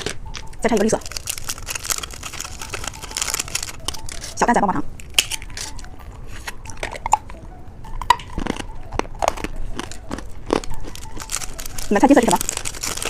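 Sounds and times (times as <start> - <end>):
candy biting and crunching: 0.0 - 7.4, 8.0 - 13.0.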